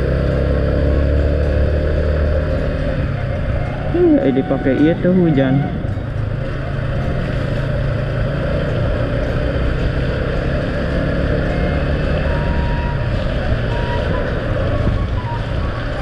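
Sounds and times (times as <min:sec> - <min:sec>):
vehicle engine running: 0:00.0 - 0:16.0
wind on microphone: 0:12.5 - 0:16.0.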